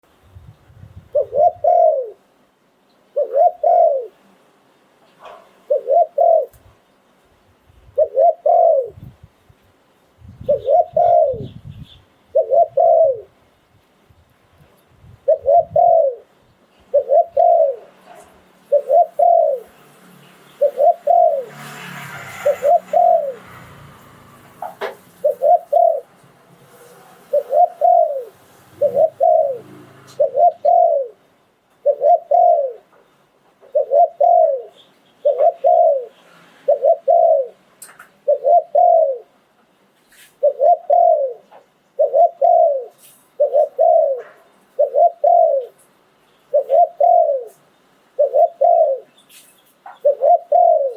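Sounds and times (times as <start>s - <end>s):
dove cooing: 1.0s - 2.2s, 3.1s - 4.2s, 5.2s - 6.7s, 7.9s - 9.1s, 10.4s - 13.4s, 15.2s - 19.8s, 20.5s - 32.9s, 33.6s - 39.4s, 40.4s - 45.8s, 46.5s - 49.2s, 49.9s - 50.9s
rustling noise: 21.4s - 28.8s, 39.9s - 40.5s, 42.9s - 43.4s, 49.2s - 49.9s.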